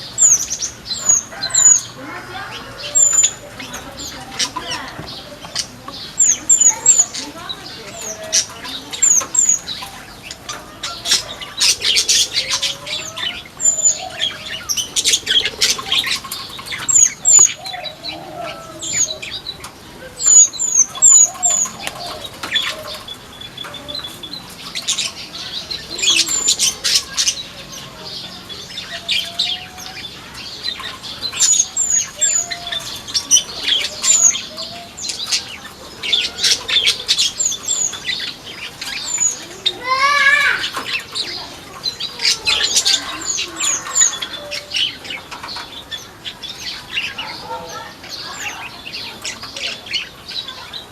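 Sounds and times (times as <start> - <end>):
birds chirping: 0.0 - 50.9
wings flapping: 21.3 - 25.2.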